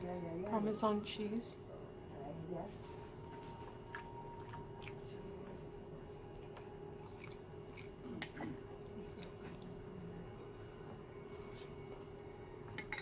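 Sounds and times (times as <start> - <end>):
steady low hum: 0.0 - 13.0
person chewing pasta: 3.8 - 5.2, 6.2 - 9.8.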